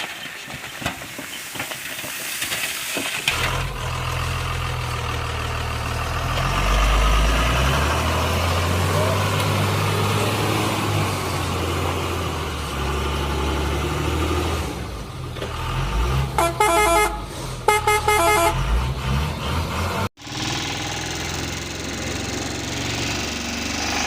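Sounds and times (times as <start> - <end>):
engine-like noise: 2.4 - 24.0
multi-note horn honking: 16.4 - 18.8
vehicle engine running: 20.2 - 24.0.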